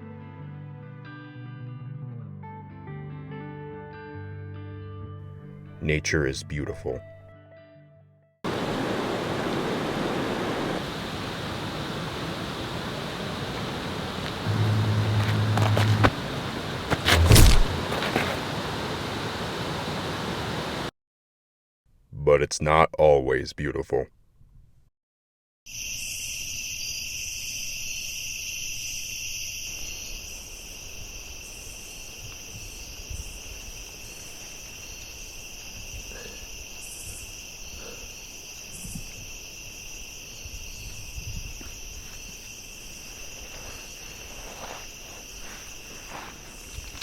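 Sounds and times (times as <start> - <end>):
insects trilling: 8.5 - 20.9, 25.7 - 47.0.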